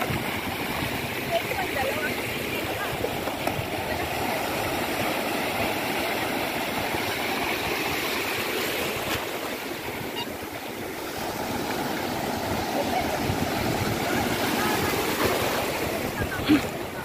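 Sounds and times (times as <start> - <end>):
waves washing onto beach: 0.0 - 17.0.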